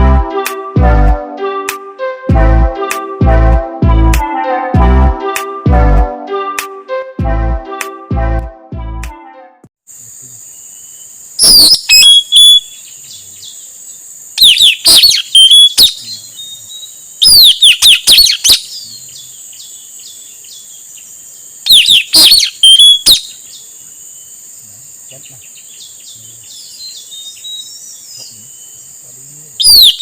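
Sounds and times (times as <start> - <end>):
high insect drone: 9.9 - 30.0
parrot shrill whistled calls: 11.4 - 12.8, 14.4 - 16.0, 17.2 - 18.8, 21.7 - 23.3, 29.6 - 30.0.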